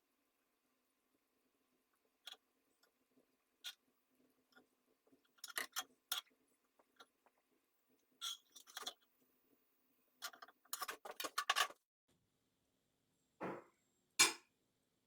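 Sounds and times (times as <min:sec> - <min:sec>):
small parts clicking and tapping: 0:04.5 - 0:07.2.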